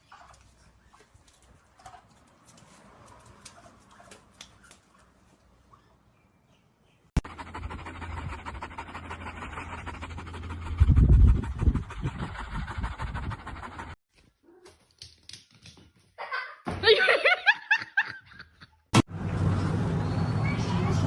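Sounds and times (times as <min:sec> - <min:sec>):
dog panting: 0:07.2 - 0:14.0.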